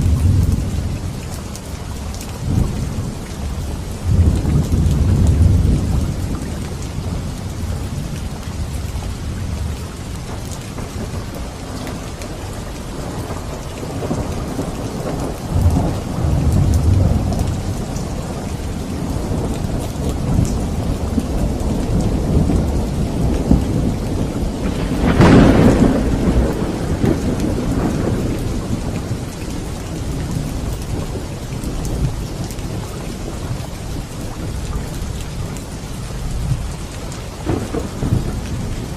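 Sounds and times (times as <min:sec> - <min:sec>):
low rolling thunder: 0:00.0 - 0:38.9
steady rain: 0:00.0 - 0:38.9
sharp thunderclap: 0:19.1 - 0:29.3, 0:37.4 - 0:38.9.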